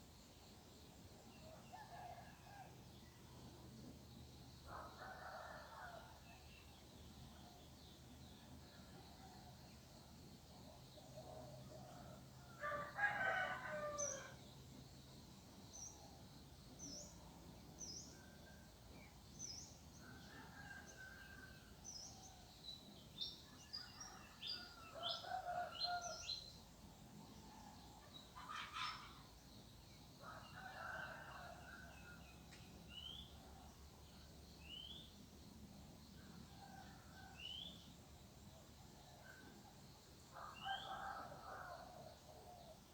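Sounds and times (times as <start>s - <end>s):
rooster crowing: 12.6s - 14.3s.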